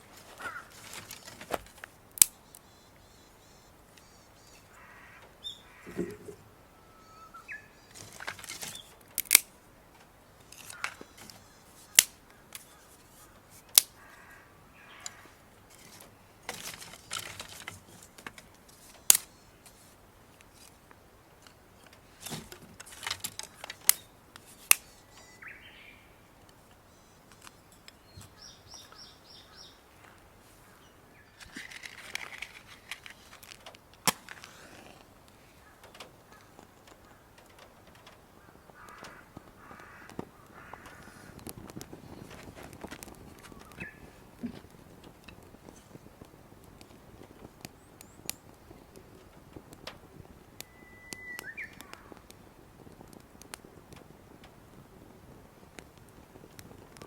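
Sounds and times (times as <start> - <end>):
soft rustling handling noise: 0.0 - 2.6, 5.6 - 6.6, 7.8 - 25.5, 26.3 - 50.5
high bird chirps: 2.3 - 8.0, 24.9 - 26.2, 43.5 - 44.1, 50.6 - 52.0
sharp clicks and pops: 7.9 - 14.1, 31.4 - 54.8.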